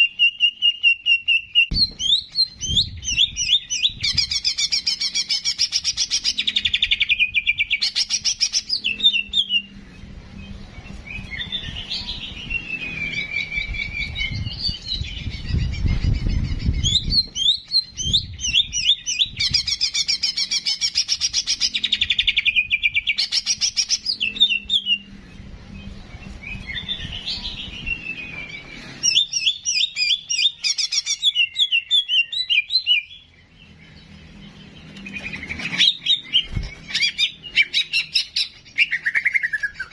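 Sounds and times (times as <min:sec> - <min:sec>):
bulbul trilled chirps and whistles: 0:00.0 - 0:09.8, 0:34.9 - 0:39.9.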